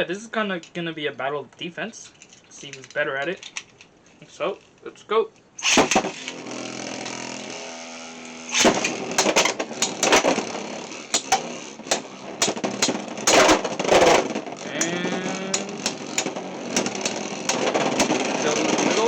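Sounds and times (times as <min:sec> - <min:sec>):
spinning tops whirring: 0:05.6 - 0:19.0
spinning tops clacking together: 0:08.5 - 0:19.0.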